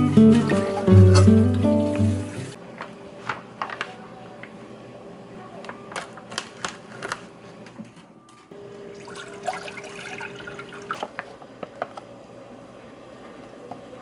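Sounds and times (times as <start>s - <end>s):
water running: 0.3s - 2.6s, 8.8s - 11.2s.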